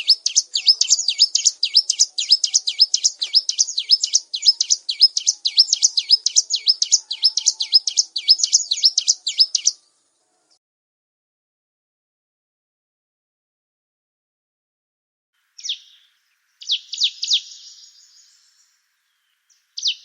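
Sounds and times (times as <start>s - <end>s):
bird singing sharp chirps: 0.0s - 9.9s, 15.6s - 20.0s.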